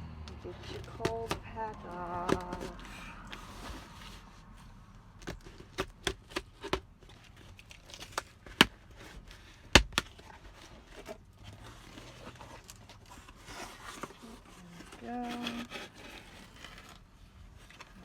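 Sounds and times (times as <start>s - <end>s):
packaging snapping: 0.3s - 3.4s
packaging crinkling and tearing: 5.2s - 18.0s.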